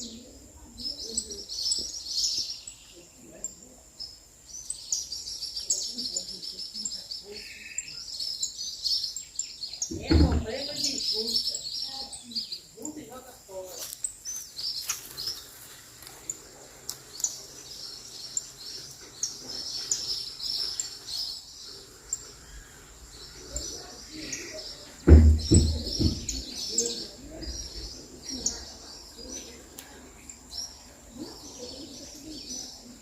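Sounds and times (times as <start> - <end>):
songbirds chirping and singing: 0.0 - 33.0
loud low thumps: 25.0 - 26.5.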